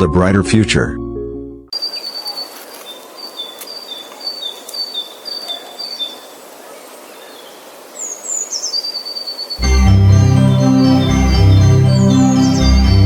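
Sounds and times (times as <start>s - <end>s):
small bird singing: 1.7s - 9.7s, 10.3s - 13.0s
outdoor hiss: 1.8s - 9.6s.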